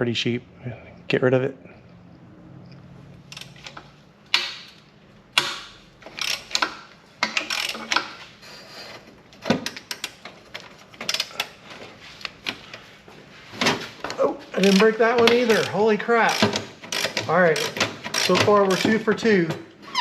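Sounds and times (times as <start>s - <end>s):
ratchet wrench clicking: 5.4s - 8.1s, 14.6s - 19.1s.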